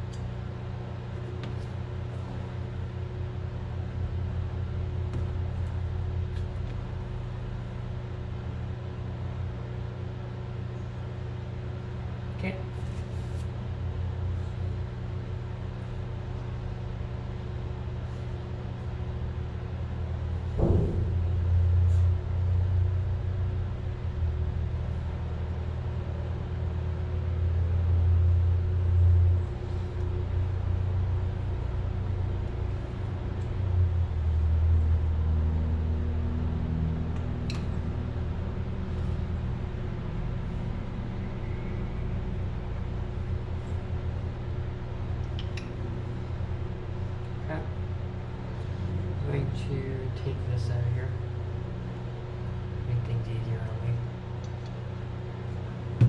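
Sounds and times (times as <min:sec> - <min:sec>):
low mechanical hum: 0:00.0 - 0:56.0
rumble: 0:11.2 - 0:49.4
sharp knock: 0:20.6 - 0:21.2.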